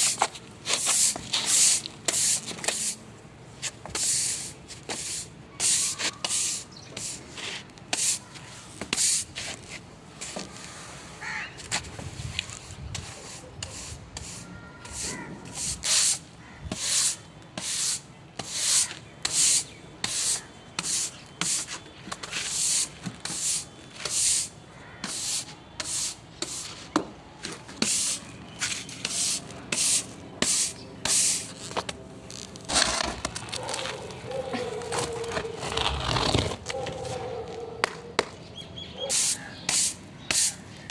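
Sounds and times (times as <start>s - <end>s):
brush scrubbing a surface: 29.0s - 31.5s.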